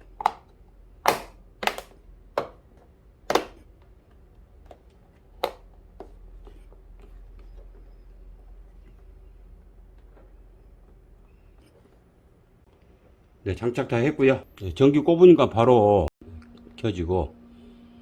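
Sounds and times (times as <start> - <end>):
plastic panel clicks and knocks: 0.2 - 2.6, 3.3 - 3.6
faint steady hum: 16.2 - 18.0.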